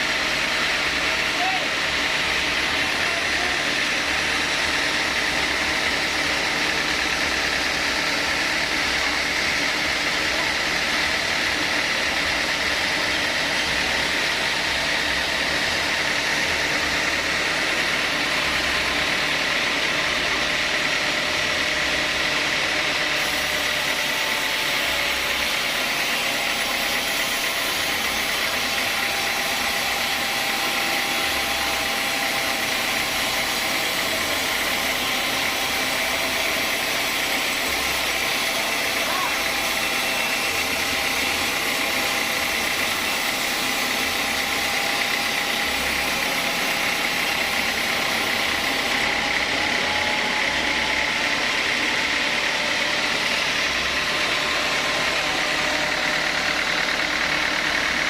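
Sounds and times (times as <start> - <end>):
sawmill saw machinery running: 0.0 - 58.0.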